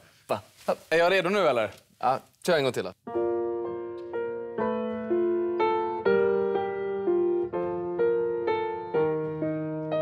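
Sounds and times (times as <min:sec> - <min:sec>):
piano chords: 0:03.0 - 0:10.0.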